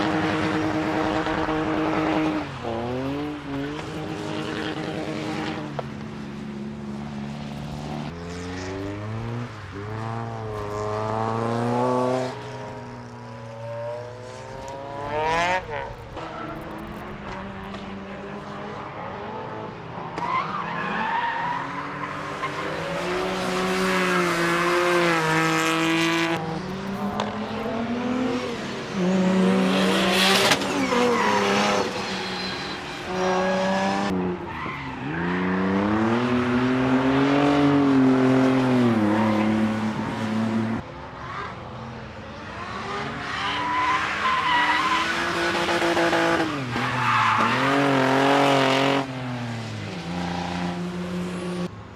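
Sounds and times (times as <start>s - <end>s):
race car engines revving: 0.0s - 51.9s
tyre squeal: 29.6s - 35.4s, 43.2s - 48.6s.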